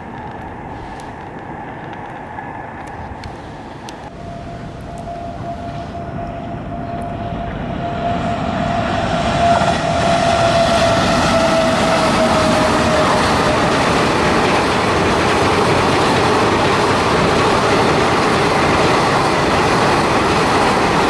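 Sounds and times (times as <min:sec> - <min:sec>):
train rumble: 0:00.0 - 0:21.0
steady high tone: 0:04.1 - 0:13.8.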